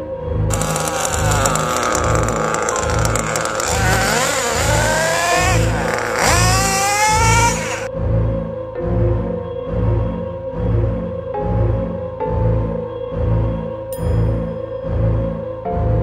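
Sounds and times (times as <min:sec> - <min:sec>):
small engine revving whine: 0:00.5 - 0:07.9.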